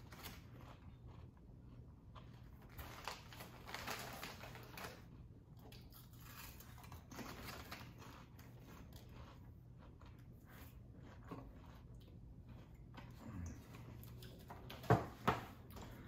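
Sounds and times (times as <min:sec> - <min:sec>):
chewing crunchy chips: 0:00.0 - 0:14.6.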